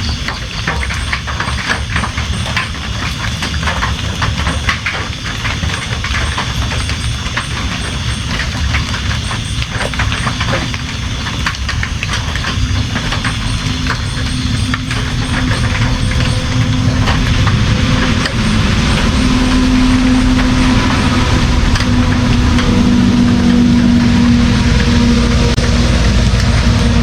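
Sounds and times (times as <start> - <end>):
drops tapping: 0.0 - 27.0
heavy rain: 0.0 - 27.0
low rumble: 11.8 - 27.0.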